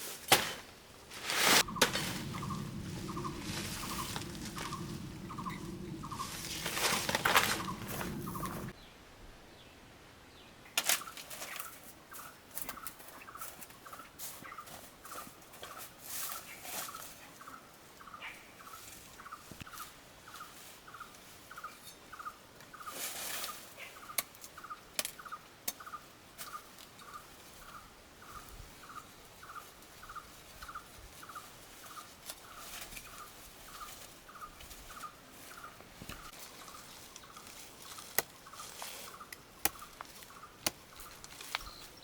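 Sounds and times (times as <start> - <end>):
animal chirping: 1.6 - 8.7.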